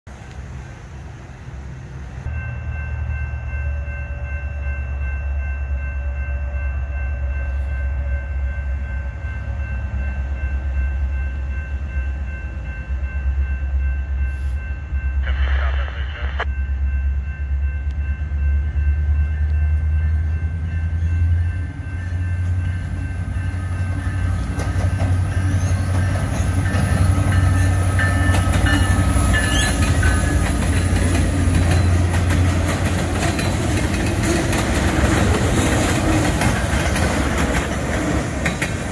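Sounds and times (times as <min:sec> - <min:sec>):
diesel locomotives rumbling: 0:00.1 - 0:38.9
train wheels clattering: 0:23.9 - 0:38.9.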